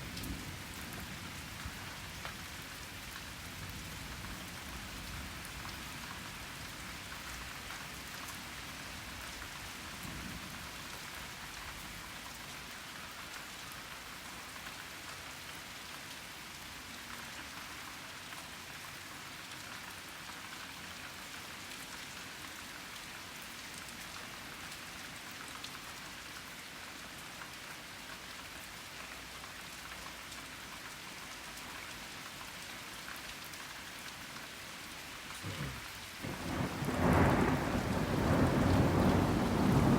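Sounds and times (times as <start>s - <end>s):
rain pattering on surfaces: 0.0s - 39.9s
faint low thunder rumble: 35.4s - 39.9s.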